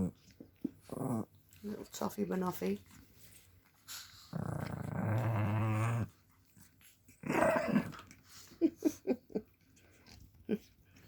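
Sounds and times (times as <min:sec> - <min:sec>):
dog play-growling: 0:00.0 - 0:08.6.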